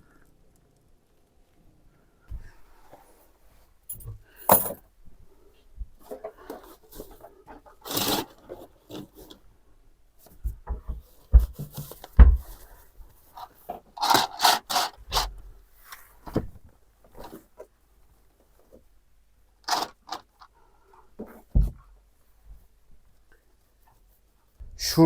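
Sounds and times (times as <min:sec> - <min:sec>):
heavy thumps: 0:10.4 - 0:12.6.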